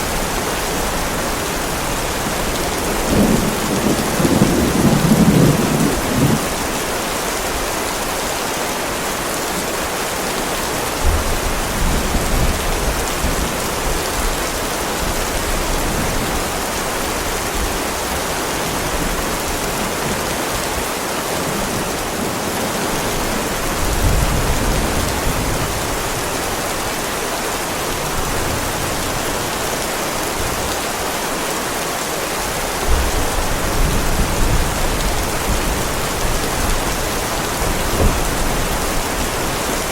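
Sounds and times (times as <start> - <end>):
heavy rain on pavement: 0.0 - 39.9
thunder rumbling: 1.0 - 6.6, 32.9 - 39.9.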